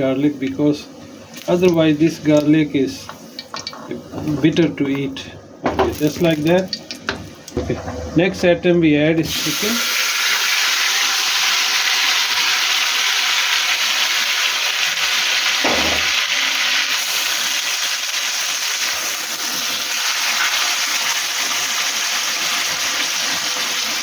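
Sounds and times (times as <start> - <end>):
chicken sizzling in oil: 9.3 - 24.0
dull knock: 15.6 - 16.2.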